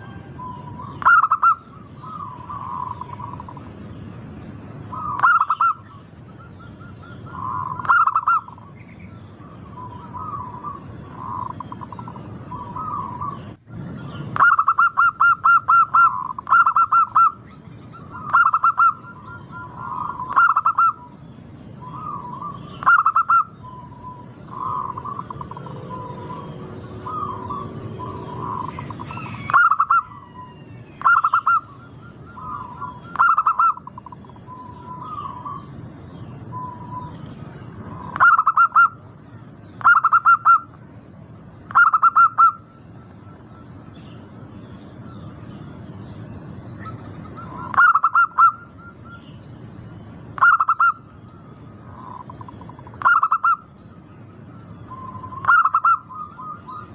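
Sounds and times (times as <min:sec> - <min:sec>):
doves cooing: 0:00.0 - 0:03.9, 0:04.9 - 0:21.1, 0:21.8 - 0:35.8, 0:36.4 - 0:39.2, 0:39.8 - 0:40.8, 0:41.7 - 0:43.8, 0:46.7 - 0:49.2, 0:50.4 - 0:53.8, 0:54.9 - 0:56.9.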